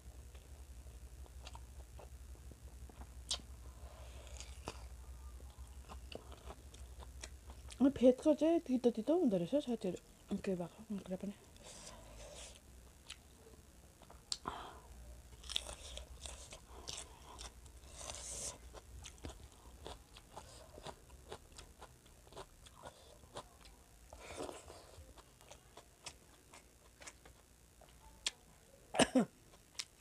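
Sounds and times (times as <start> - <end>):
chewing with mouth clicks: 15.4 - 28.4.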